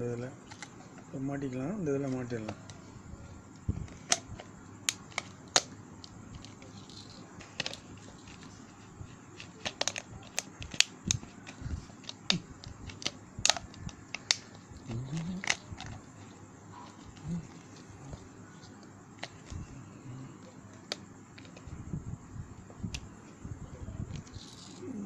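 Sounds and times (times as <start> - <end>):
plastic parts clicking and tapping: 3.9 - 8.5, 9.4 - 16.3, 16.9 - 19.6, 20.7 - 21.7.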